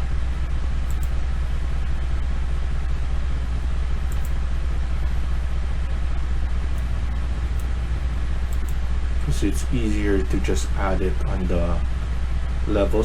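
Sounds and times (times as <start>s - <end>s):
low background hum: 0.0s - 13.0s
faint clicks: 0.9s - 1.2s, 3.5s - 4.4s, 6.7s - 8.8s.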